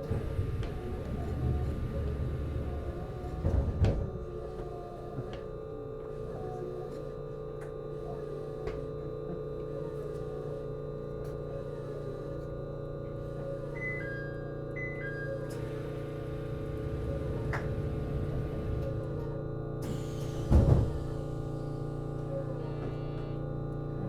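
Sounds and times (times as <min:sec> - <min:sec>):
train running rumble: 0:00.0 - 0:06.8, 0:15.0 - 0:24.0
equipment hum with fixed tones: 0:00.0 - 0:24.0.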